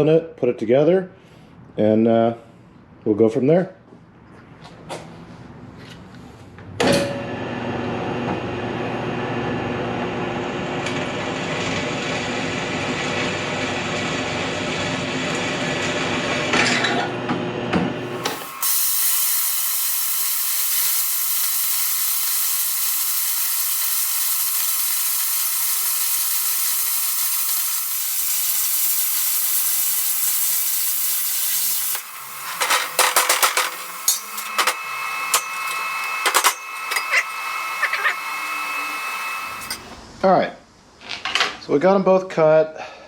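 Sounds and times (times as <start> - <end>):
power tool running: 18.0 - 40.0
plasma cutter hissing: 18.1 - 39.9.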